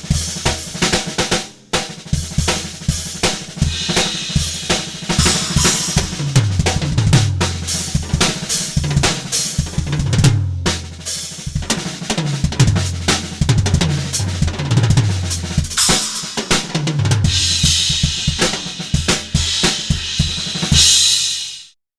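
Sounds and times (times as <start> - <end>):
drum kit groove: 0.0 - 21.8
cymbal wash: 3.6 - 6.6, 15.7 - 21.6
bass line: 12.6 - 15.8.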